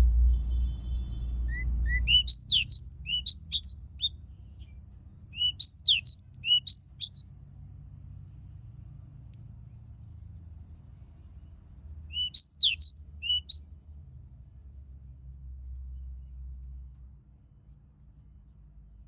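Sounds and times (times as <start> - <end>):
bird singing whistled notes: 1.4 - 4.1, 5.4 - 7.2, 12.1 - 13.7.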